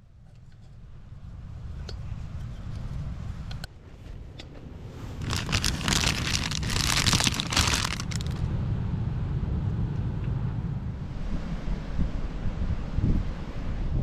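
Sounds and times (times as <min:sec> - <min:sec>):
wind rumbling on microphone: 0:00.5 - 0:14.0
crinkling rustle: 0:05.0 - 0:08.5.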